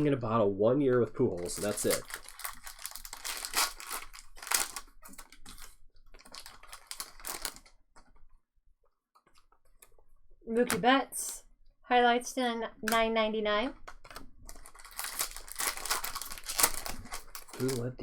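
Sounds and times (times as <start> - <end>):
card pack wrappers crinkling: 1.0 - 7.8, 13.9 - 18.0
cards being handled: 13.9 - 17.9.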